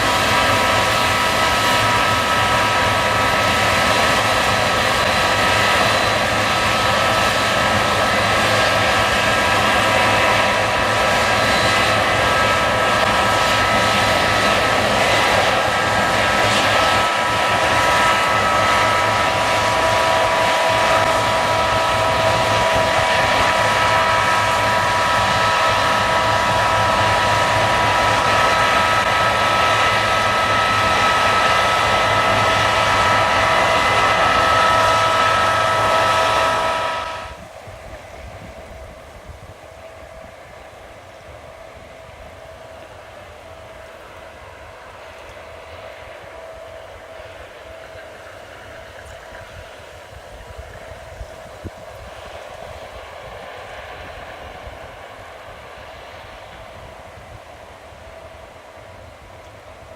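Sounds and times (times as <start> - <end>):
high whining tones: 0.0 - 39.0
combine harvester running: 0.0 - 59.9
lower whine: 0.0 - 59.9.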